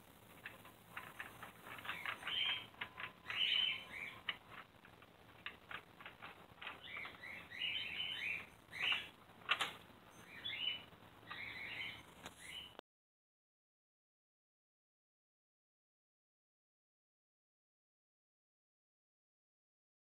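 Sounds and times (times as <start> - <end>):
small bird chirping: 0.4 - 5.8, 6.5 - 12.8.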